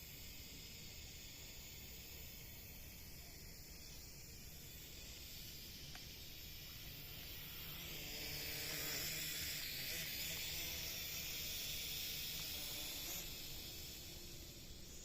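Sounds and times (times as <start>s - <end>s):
drone propellers whirring: 4.4s - 15.0s.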